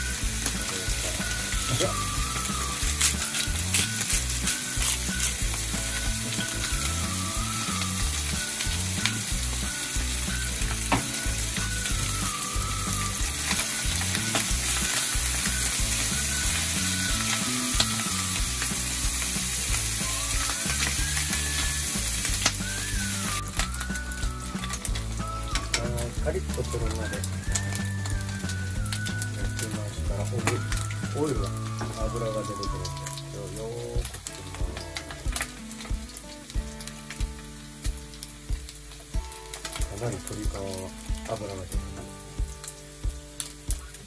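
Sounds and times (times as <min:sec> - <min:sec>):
chicken skin sizzling in a pan: 0:00.0 - 0:44.0.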